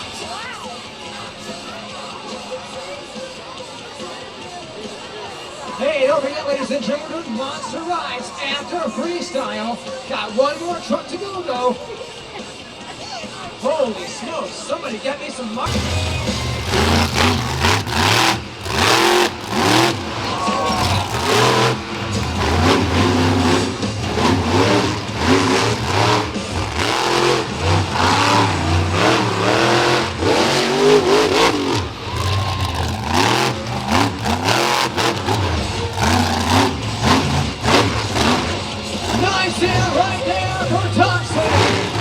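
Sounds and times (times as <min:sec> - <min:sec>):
monster truck engine revving: 0:15.6 - 0:42.0.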